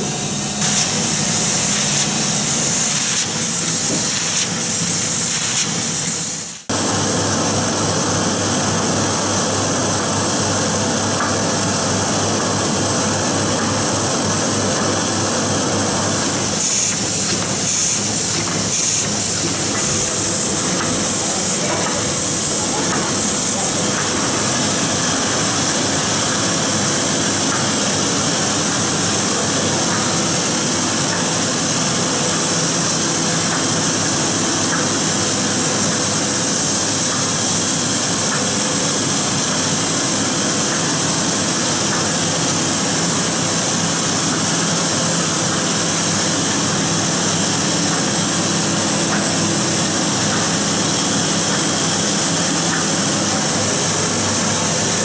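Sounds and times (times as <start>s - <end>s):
printing press running: 0.0s - 55.0s.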